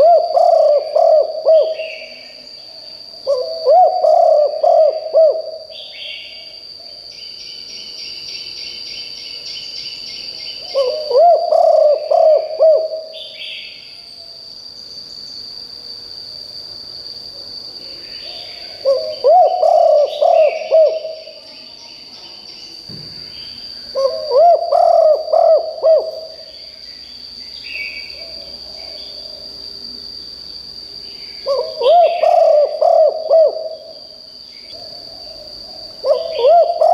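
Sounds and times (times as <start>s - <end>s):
dove cooing: 0.0s - 2.2s, 3.2s - 5.8s, 10.6s - 13.2s, 18.3s - 21.4s, 23.9s - 26.4s, 31.4s - 34.0s, 34.8s - 36.9s
high-pitched insect drone: 0.0s - 36.9s.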